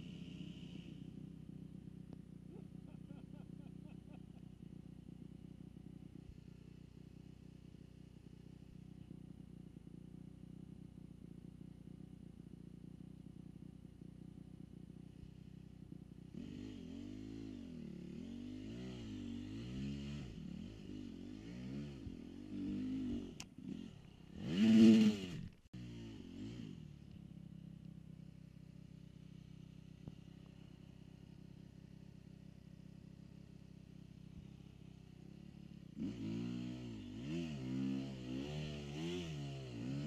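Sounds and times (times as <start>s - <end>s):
dirt bike engine revving: 16.3s - 26.9s, 35.9s - 40.0s.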